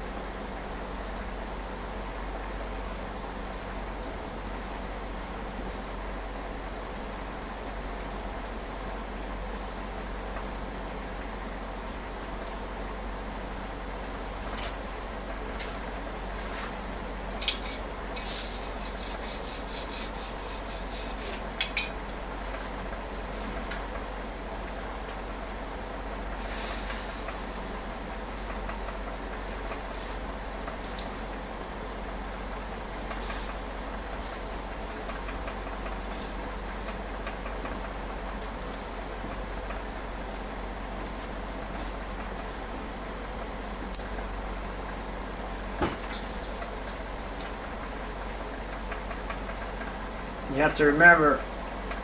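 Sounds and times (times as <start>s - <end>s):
welding torch flame hissing: 13.0s - 23.7s, 25.6s - 52.0s.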